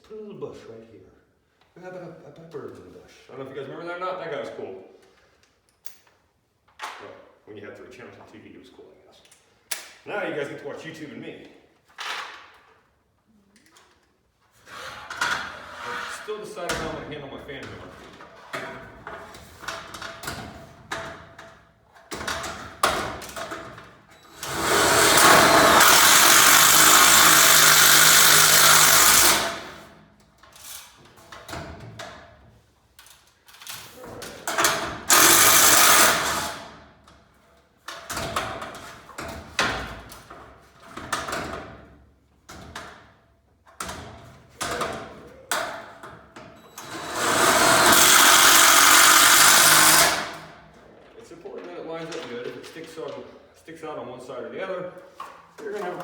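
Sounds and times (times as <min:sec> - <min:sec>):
cordless drill driving screws into metal: 0:24.2 - 0:29.9, 0:34.5 - 0:36.8, 0:46.7 - 0:50.6
tool and hardware clicks: 0:34.5 - 0:36.6, 0:46.8 - 0:50.5.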